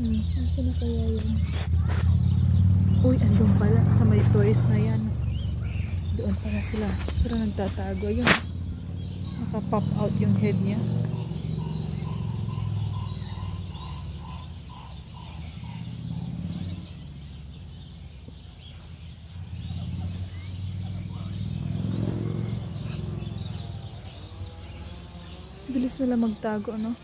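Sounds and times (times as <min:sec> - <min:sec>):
low rumble: 0:00.0 - 0:18.2
birds chirping: 0:00.0 - 0:27.0
repeated lower bird notes: 0:00.0 - 0:27.0.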